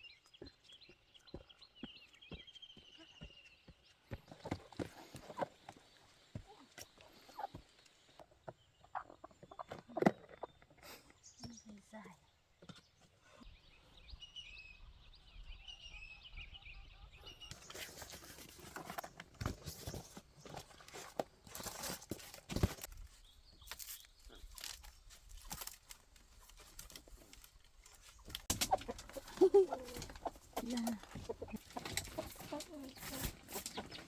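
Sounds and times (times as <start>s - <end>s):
faint high bird chirps: 11.2s - 18.2s
faint crunching and rustling: 17.5s - 34.0s.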